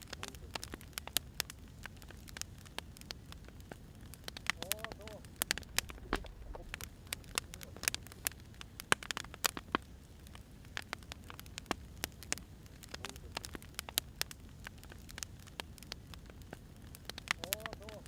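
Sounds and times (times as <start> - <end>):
firewood crackling and popping: 0.0 - 18.0
low rumble of flame: 0.0 - 18.0.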